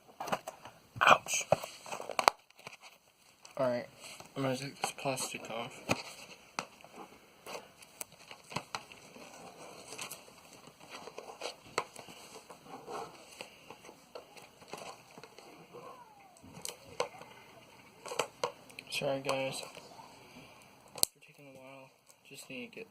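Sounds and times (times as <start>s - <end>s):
plastic wrap crinkling: 1.6s - 17.3s.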